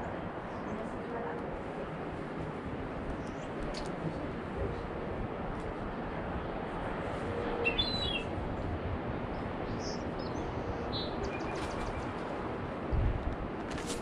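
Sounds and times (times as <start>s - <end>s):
high bird chirps: 7.6s - 8.3s.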